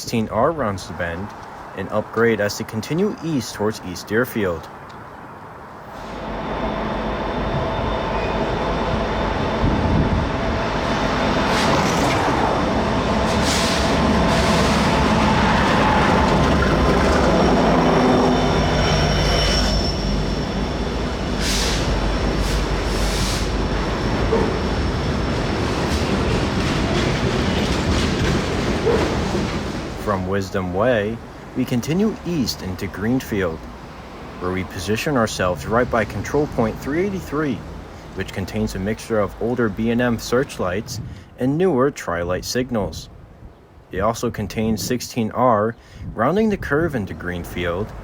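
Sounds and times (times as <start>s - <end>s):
freight train locomotive rumble: 5.8s - 41.2s, 46.8s - 48.0s
train wheels squealing: 6.0s - 9.4s, 16.8s - 23.5s.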